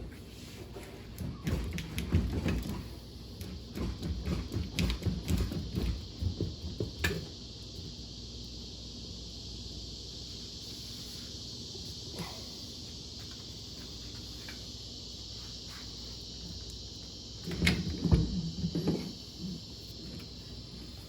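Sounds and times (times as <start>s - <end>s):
cicadas droning: 0.0s - 21.0s
metal clunks and scraping: 17.4s - 19.3s.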